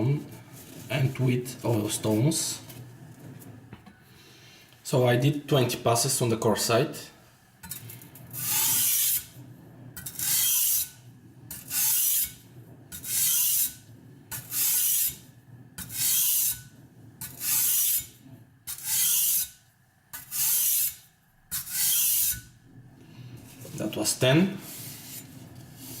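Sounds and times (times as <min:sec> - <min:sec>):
knife scraping on sharpening stone: 0:20.2 - 0:21.0, 0:21.6 - 0:22.4.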